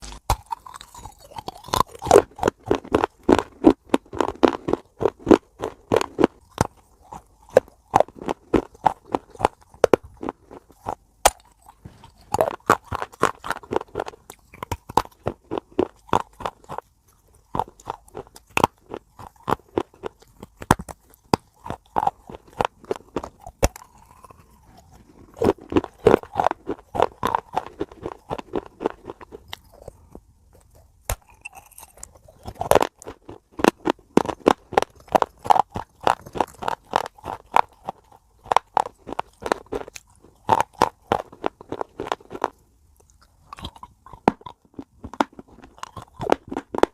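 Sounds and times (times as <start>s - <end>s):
chewing crunchy food: 0.0s - 46.9s.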